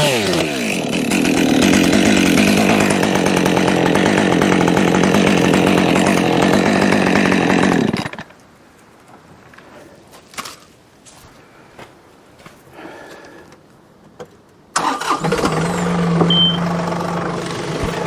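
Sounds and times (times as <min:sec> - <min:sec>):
chainsaw cutting wood: 0:00.0 - 0:08.4, 0:14.8 - 0:18.0.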